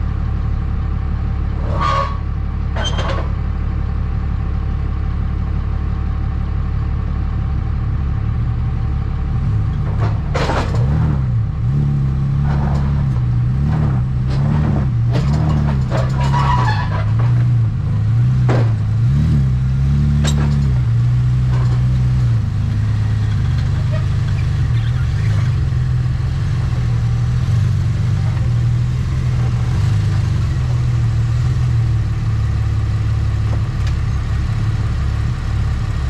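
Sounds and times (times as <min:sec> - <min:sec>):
clunks: 0:01.5 - 0:03.4, 0:09.5 - 0:31.8.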